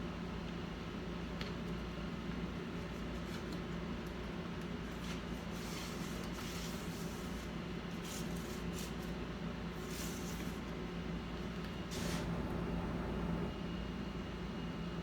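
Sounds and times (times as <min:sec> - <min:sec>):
low electrical hum: 0:11.9 - 0:13.6.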